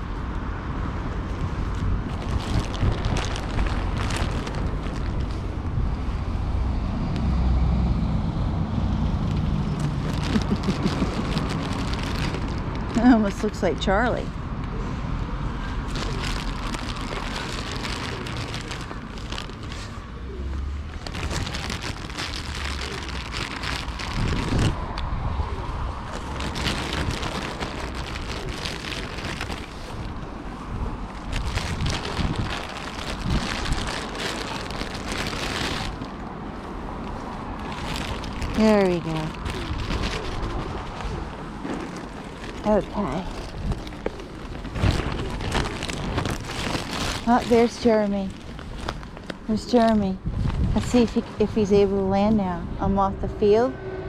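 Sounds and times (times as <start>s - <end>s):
wind buffeting microphone: 0.0s - 6.9s, 15.3s - 54.0s
low traffic rumble: 0.0s - 54.0s
vehicle passing: 0.4s - 51.7s, 52.4s - 54.0s
crackling patter: 1.0s - 6.1s, 9.1s - 14.4s, 15.7s - 51.7s.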